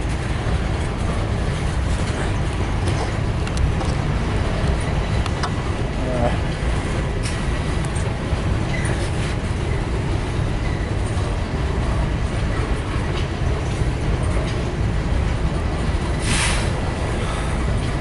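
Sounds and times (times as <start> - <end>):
freight train rolling rumble: 0.0 - 18.0
short hiss: 16.2 - 16.7.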